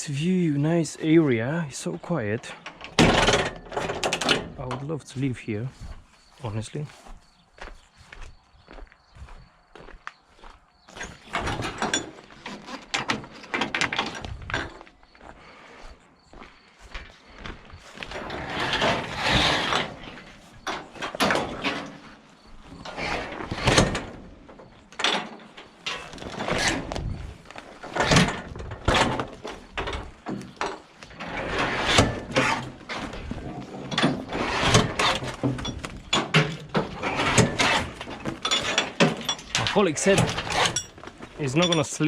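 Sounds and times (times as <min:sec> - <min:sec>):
objects knocking and scraping: 0:02.4 - 0:06.0, 0:10.9 - 0:14.9, 0:17.9 - 0:42.0.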